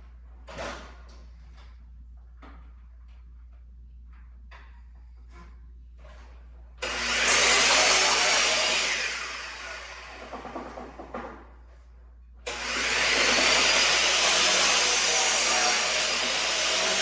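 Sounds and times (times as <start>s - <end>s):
power saw cutting wood: 6.8s - 10.6s, 12.5s - 17.0s.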